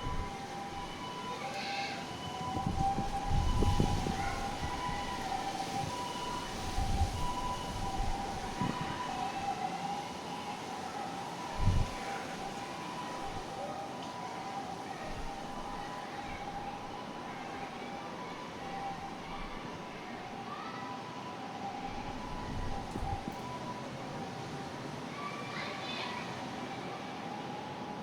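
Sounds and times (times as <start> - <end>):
wind buffeting microphone: 0.0 - 1.1, 2.2 - 9.6, 11.4 - 12.5, 21.7 - 23.6
distant two-tone siren: 0.0 - 25.4, 26.2 - 28.0
wind: 0.0 - 28.0.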